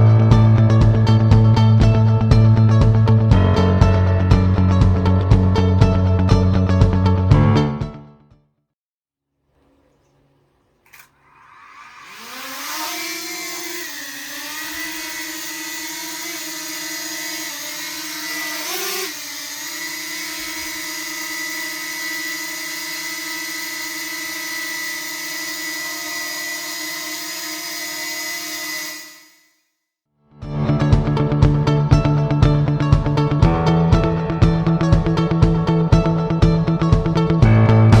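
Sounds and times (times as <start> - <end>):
drone buzzing whine: 10.9 - 29.5.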